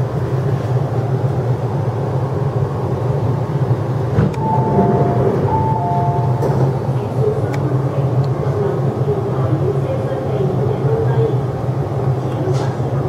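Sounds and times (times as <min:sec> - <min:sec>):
train running hum and rumble: 0:00.0 - 0:13.0
short high tones: 0:04.4 - 0:06.7.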